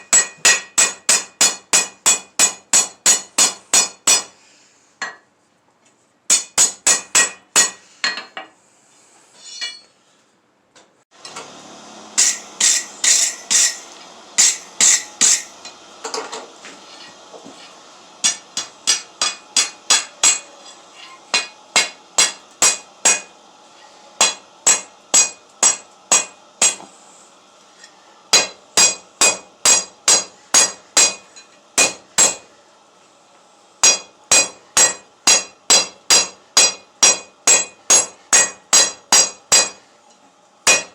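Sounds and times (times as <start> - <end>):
hammer ringing on anvil: 0.0 - 4.3, 12.2 - 15.8, 18.2 - 20.5, 24.2 - 26.8, 28.3 - 32.4, 33.8 - 39.8, 40.7 - 40.9
steady hum: 11.3 - 40.9.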